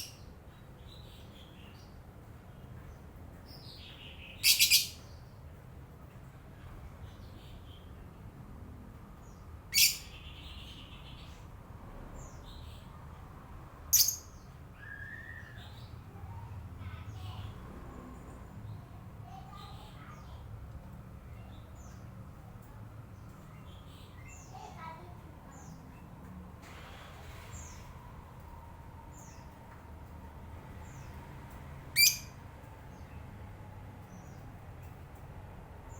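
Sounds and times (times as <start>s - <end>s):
faint high bird chirps: 3.5s - 5.2s, 9.3s - 11.4s, 13.9s - 17.6s, 31.9s - 33.2s
lovebird shrill calls: 4.4s - 5.0s, 13.9s - 15.4s, 31.9s - 32.4s.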